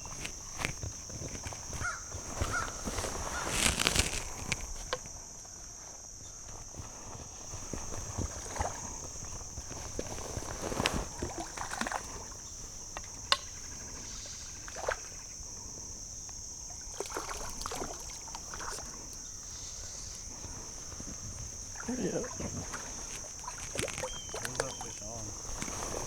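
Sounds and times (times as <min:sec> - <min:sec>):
river water sloshing and splashing: 0:07.4 - 0:15.4, 0:16.5 - 0:26.0.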